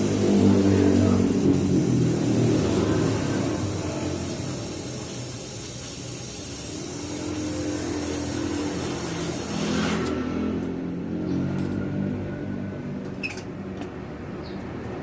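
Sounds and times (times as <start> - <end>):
motorcycle engine revving and idling: 0.0 - 5.7
hiss: 0.0 - 10.1.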